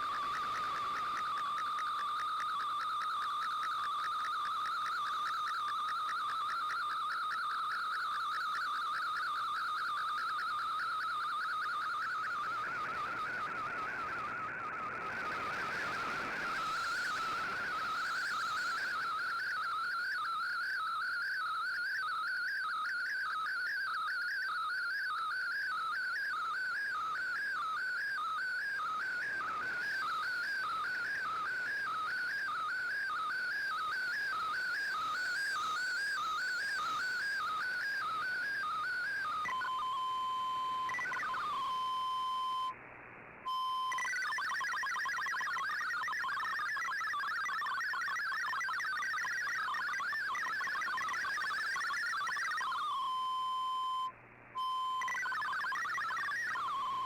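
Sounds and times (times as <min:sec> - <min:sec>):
warbling radio data signal: 0:00.0 - 0:42.7, 0:43.5 - 0:57.0
radio static hiss: 0:14.9 - 0:19.5.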